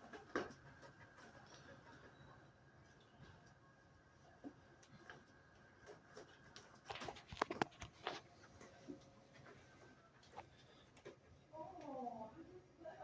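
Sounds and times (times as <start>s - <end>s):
clicks and rustles of handling: 4.3s - 12.0s.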